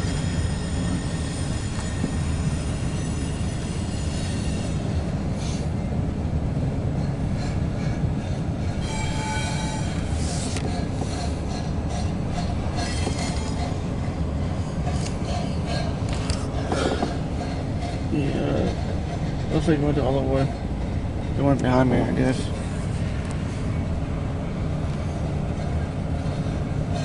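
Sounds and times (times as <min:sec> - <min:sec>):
freight train rumble: 0:00.0 - 0:27.0
high-pitched wheel squeal: 0:00.1 - 0:05.6, 0:08.8 - 0:13.8.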